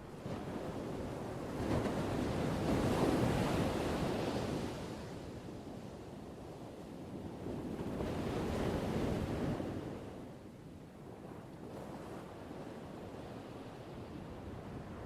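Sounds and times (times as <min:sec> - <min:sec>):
ocean waves washing ashore: 0:00.0 - 0:11.0.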